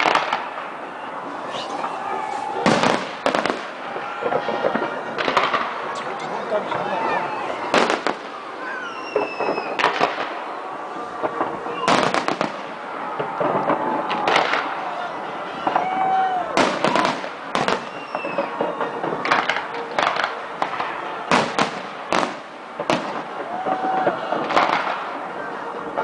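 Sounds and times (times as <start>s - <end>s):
fireworks bangs: 0.0s - 26.0s
crackle of bursting shells: 16.6s - 25.3s.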